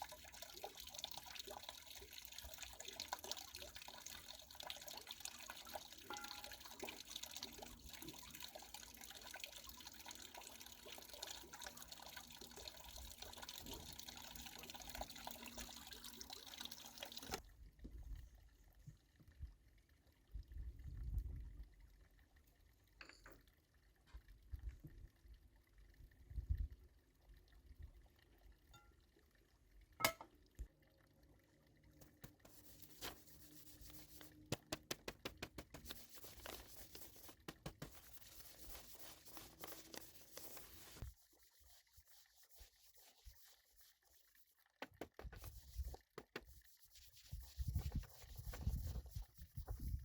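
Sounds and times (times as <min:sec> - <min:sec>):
liquid splashing in a bowl: 0:00.0 - 0:17.4.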